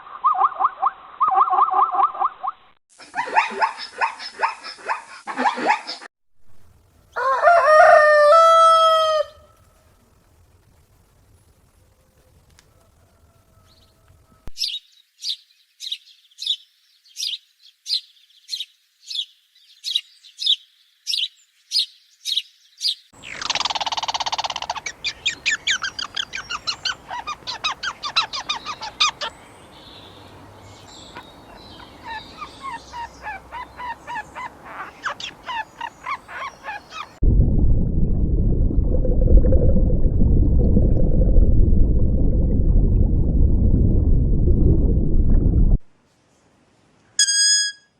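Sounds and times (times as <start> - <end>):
high bird calls: 17.2 - 37.2
rapid bird chirping: 23.2 - 37.2
loud low rushing noise: 37.2 - 45.8.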